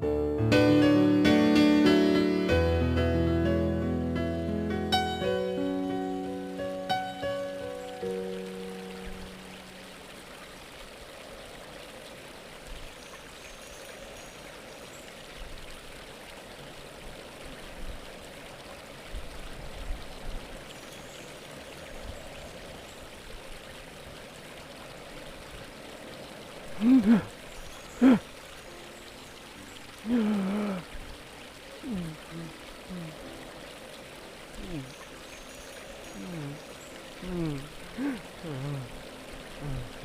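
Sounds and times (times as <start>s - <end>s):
running water: 0.0s - 40.0s
person making loud vocal sounds: 26.7s - 27.3s, 28.0s - 28.2s, 30.0s - 30.9s, 31.8s - 33.2s, 34.6s - 34.9s, 36.2s - 36.6s, 37.2s - 39.0s, 39.6s - 40.0s.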